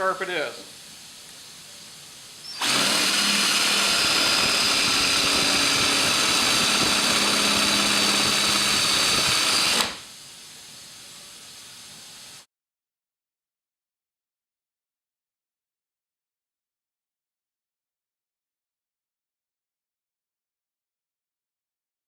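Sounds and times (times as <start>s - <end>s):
power drill boring: 2.5s - 10.0s.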